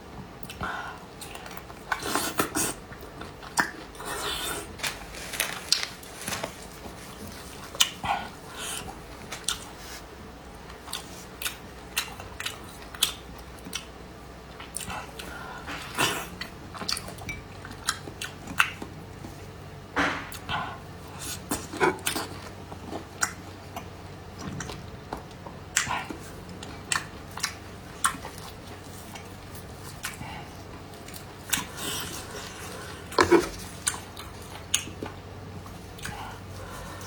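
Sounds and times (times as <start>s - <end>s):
chewing and mouth smacks: 1.2s - 4.0s, 7.6s - 8.1s, 10.6s - 19.4s, 21.2s - 36.4s.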